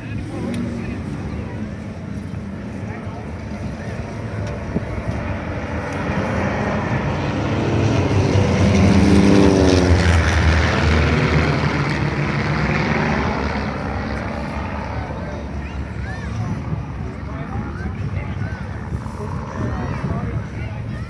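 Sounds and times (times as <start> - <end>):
propeller aircraft flying past: 0.0 - 21.0.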